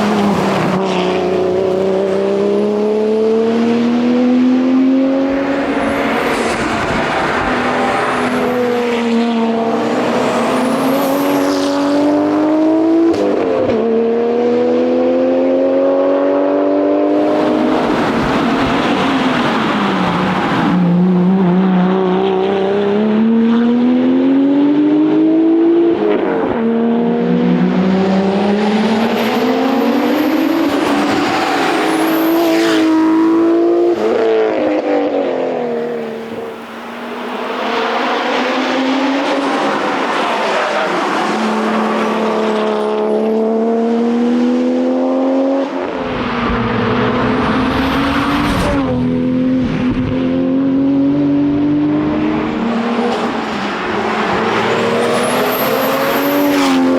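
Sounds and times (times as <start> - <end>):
car engine revving hard: 22.1 - 56.9.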